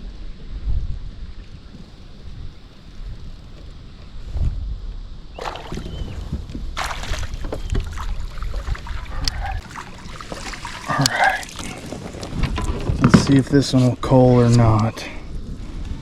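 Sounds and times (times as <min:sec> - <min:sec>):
wind buffeting microphone: 0:00.0 - 0:16.0
water splashes: 0:05.4 - 0:13.4.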